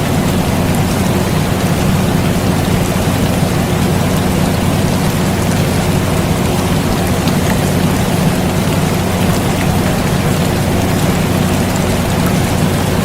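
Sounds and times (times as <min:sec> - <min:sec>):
air conditioner humming: 0:00.0 - 0:13.0
steady rain: 0:00.0 - 0:13.0.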